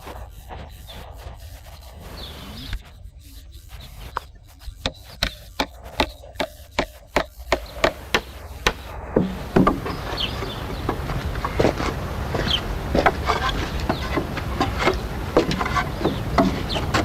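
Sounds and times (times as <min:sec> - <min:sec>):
tool knocking on wood: 0:05.2 - 0:17.0.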